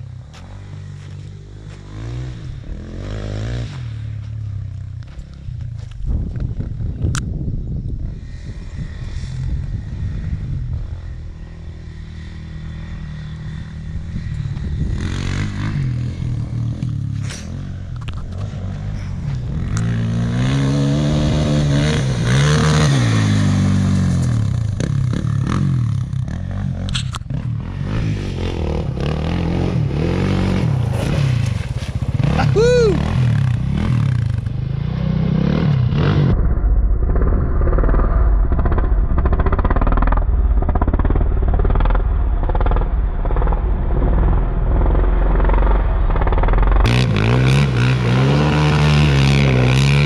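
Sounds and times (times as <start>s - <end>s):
atv engine revving: 0.0s - 5.9s, 8.2s - 36.4s, 38.6s - 50.0s
knocks and scrapes over ground: 16.8s - 20.4s, 30.3s - 32.3s.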